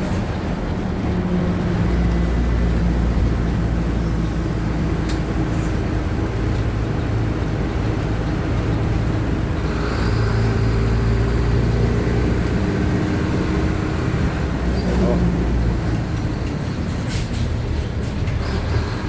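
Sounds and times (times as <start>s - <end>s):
bus diesel engine running: 0.0s - 19.0s.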